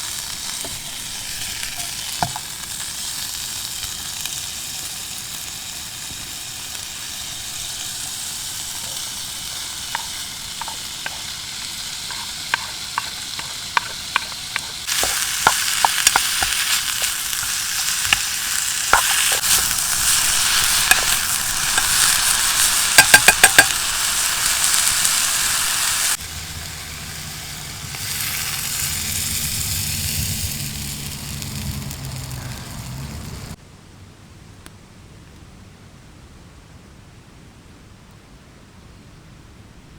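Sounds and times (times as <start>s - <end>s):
food sizzling in a frying pan: 0.0s - 33.6s
utensil clicking while stirring: 8.8s - 22.0s.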